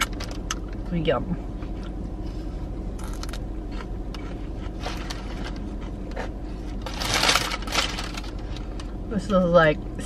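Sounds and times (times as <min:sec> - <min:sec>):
low car cabin hum: 0:00.0 - 0:10.0
paper wrapping rustling: 0:06.7 - 0:08.9.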